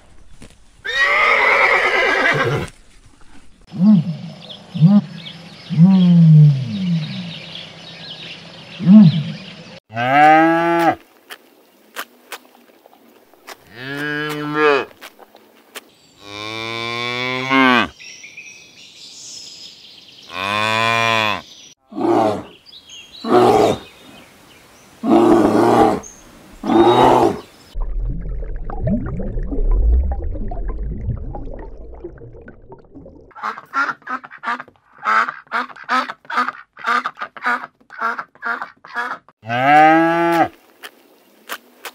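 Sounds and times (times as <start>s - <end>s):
low rumbling noise: 27.8s - 33.3s
cow mooing: 39.4s - 40.5s.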